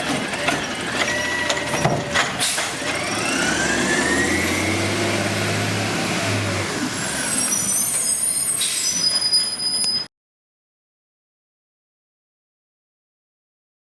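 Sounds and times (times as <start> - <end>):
heavy truck engine whine: 0.0 - 10.1.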